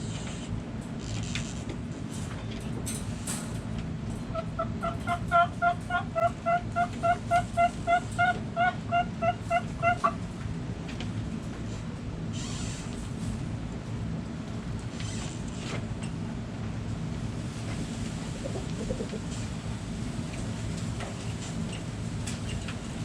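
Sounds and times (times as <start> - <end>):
chicken clucking: 4.3 - 10.3, 18.3 - 19.5
steady low rumble: 16.2 - 22.3.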